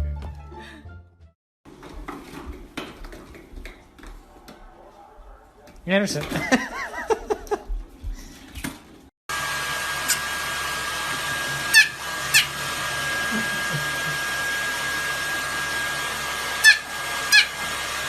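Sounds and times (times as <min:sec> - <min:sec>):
hair dryer running: 0:09.3 - 0:18.0.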